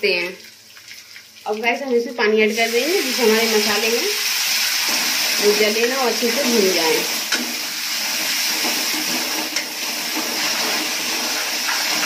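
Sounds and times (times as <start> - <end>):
paste sizzling in hot oil: 2.4 - 12.0
metal ladle scraping a pan: 7.3 - 12.0.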